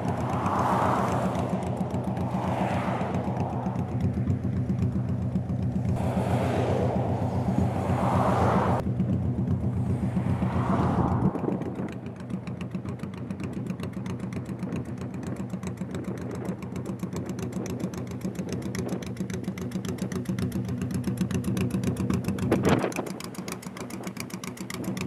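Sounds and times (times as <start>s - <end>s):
motorcycle engine idling: 0.0s - 6.0s, 8.8s - 10.6s, 11.4s - 25.0s.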